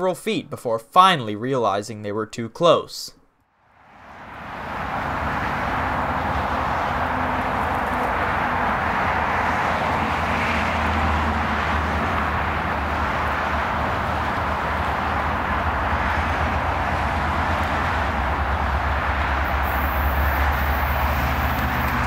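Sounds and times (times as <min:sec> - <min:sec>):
diesel train engine drone: 0:03.6 - 0:22.0
broad hiss: 0:19.4 - 0:22.0.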